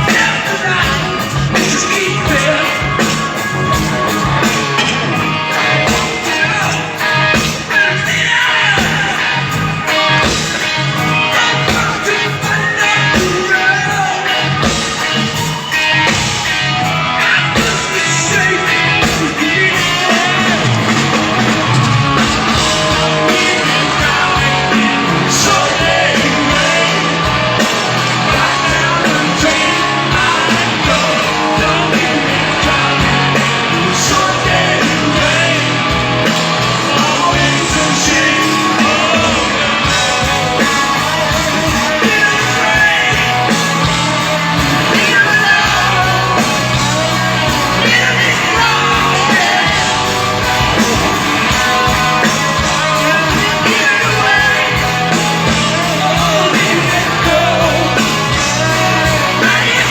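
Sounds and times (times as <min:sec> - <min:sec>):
drums playing loudly: 0:00.0 - 0:59.9
electric guitars: 0:00.0 - 0:59.9
person singing: 0:17.1 - 0:59.9.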